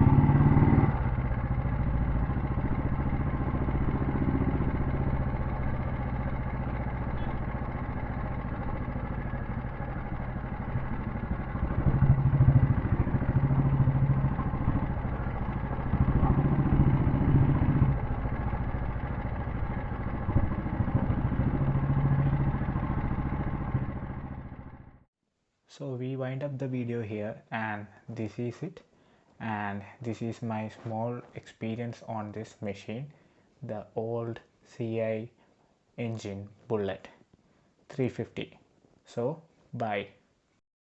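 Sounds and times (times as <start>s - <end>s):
motorcycle engine running: 0.0s - 25.1s.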